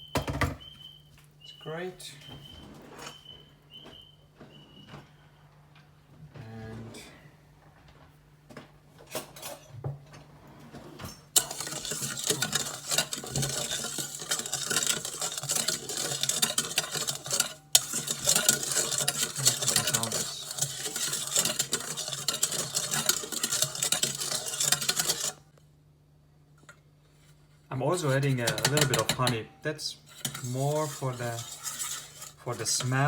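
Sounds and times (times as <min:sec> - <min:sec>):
spoon stirring and clinking: 0:11.4 - 0:25.4, 0:28.0 - 0:29.4, 0:30.1 - 0:33.0.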